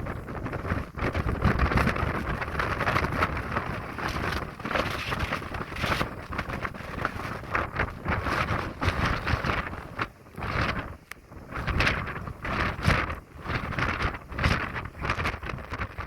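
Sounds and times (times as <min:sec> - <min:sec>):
strong gusting wind: 0:00.0 - 0:16.0.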